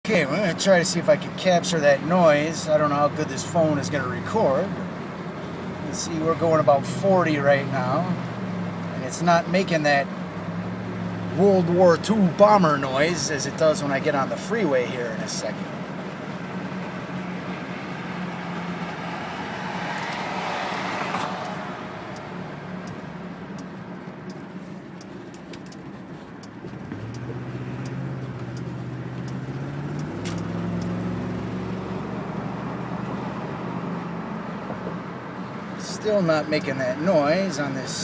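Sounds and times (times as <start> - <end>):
road noise in car cabin: 0.0 - 38.0
car engine accelerating: 15.7 - 35.5.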